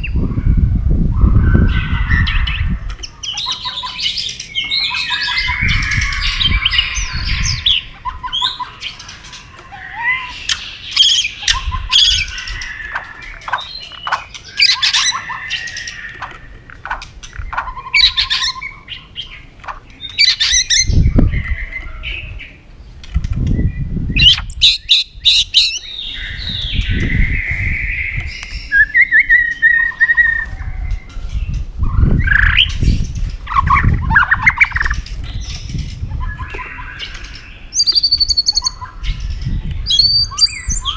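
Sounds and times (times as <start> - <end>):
bird singing whistles and trills: 23.5 - 40.9.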